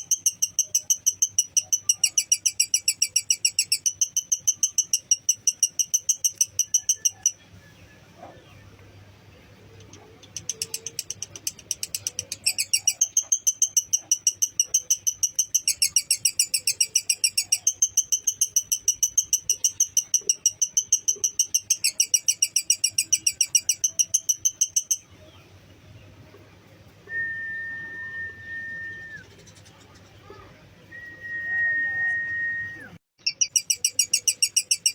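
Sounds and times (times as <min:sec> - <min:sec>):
lovebird chattering: 0:00.0 - 0:07.5, 0:09.6 - 0:25.2, 0:33.2 - 0:34.9.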